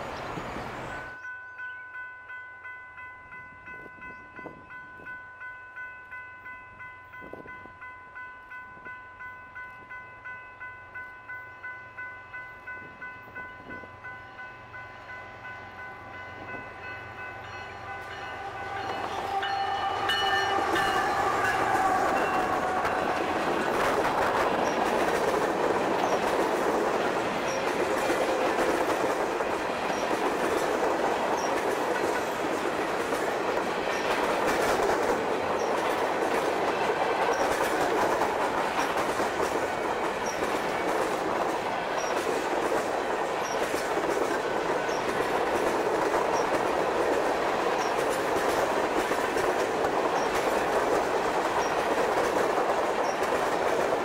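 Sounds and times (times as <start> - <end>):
train wheels on rail: 0.0 - 1.4, 3.3 - 54.0
train horn: 12.5 - 24.8.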